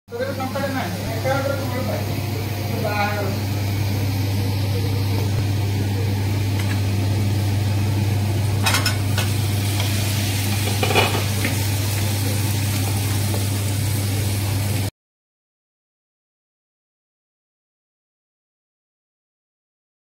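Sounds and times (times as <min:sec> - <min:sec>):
steady low hum: 0:00.1 - 0:14.9
food sizzling in a pot: 0:00.2 - 0:14.9.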